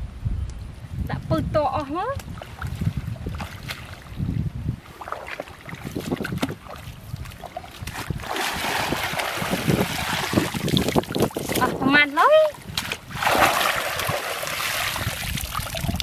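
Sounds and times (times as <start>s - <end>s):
wind and rain: 0.0s - 16.0s
water sloshing and splashing: 2.2s - 16.0s.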